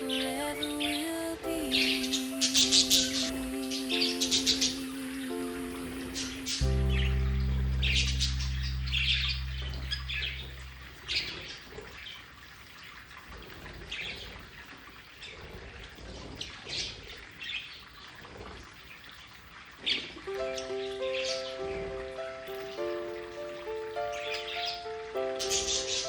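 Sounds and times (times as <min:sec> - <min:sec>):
held low music chord: 0:00.0 - 0:11.6, 0:20.3 - 0:26.0
budgerigars chirping: 0:06.1 - 0:11.6.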